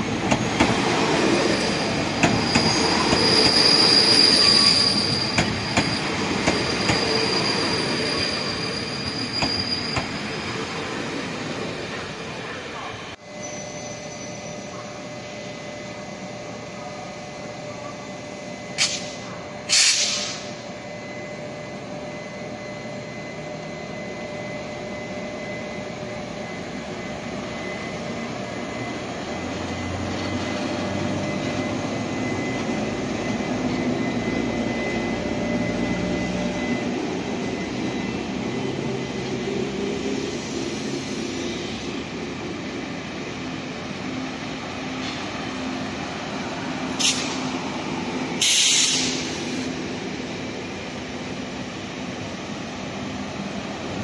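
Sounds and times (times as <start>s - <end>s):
train rolling din: 0.0s - 54.0s.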